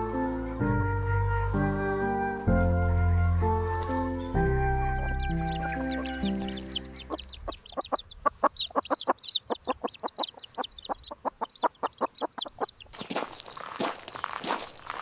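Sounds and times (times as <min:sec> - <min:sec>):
crunching rustling footsteps: 0:00.0 - 0:08.8, 0:12.9 - 0:15.0
high chirping calls: 0:03.1 - 0:13.0
chickens clucking: 0:05.2 - 0:13.0.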